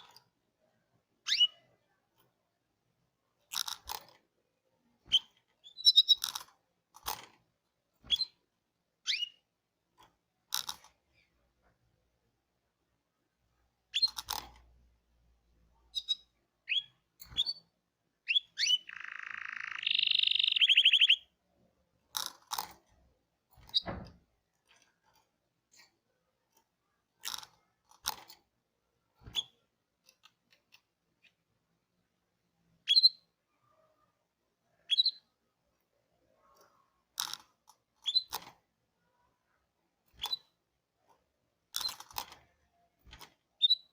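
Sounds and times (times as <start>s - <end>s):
canary chirping and trilling: 1.2s - 1.9s, 5.0s - 7.4s, 8.0s - 9.5s, 13.8s - 14.8s, 15.8s - 21.4s, 23.5s - 24.1s, 29.2s - 29.7s, 32.7s - 35.5s, 36.4s - 38.6s, 40.0s - 40.6s, 41.7s - 43.9s.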